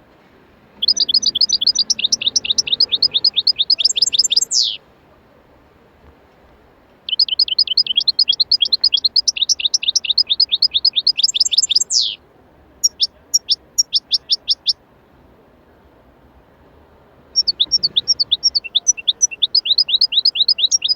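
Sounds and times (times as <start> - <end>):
small bird chirping: 0.8 - 4.8, 7.1 - 12.2, 12.8 - 14.8, 17.4 - 20.9.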